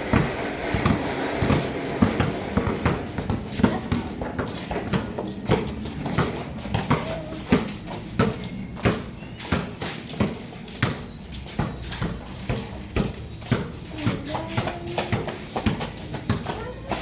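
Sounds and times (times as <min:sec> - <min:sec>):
basketball bouncing on hard court: 0:00.0 - 0:17.0.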